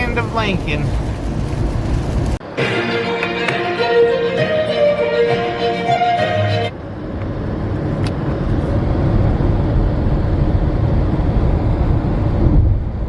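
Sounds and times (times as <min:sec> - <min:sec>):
car engine and tyre noise: 0:00.0 - 0:02.6, 0:03.2 - 0:13.0
music: 0:02.4 - 0:06.7.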